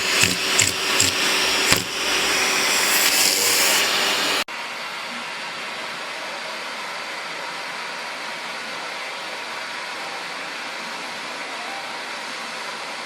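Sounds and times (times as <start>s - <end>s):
quieter steady running noise: 0.0s - 4.4s
vacuum cleaner running: 0.0s - 4.5s.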